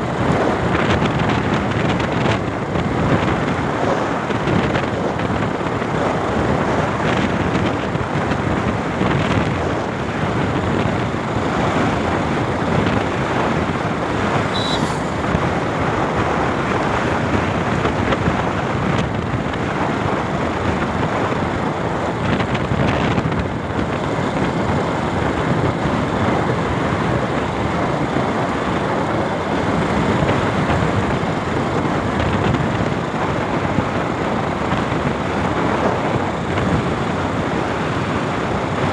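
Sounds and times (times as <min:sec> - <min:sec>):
motorcycle road noise: 0:00.0 - 0:38.9
wind buffeting microphone: 0:00.0 - 0:38.9
brief high tone: 0:14.5 - 0:15.2.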